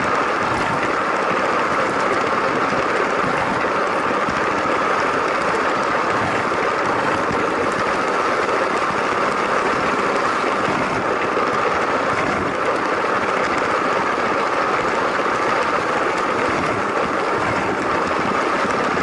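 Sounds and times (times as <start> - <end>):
plastic wheels rattling on track: 0.0 - 19.0.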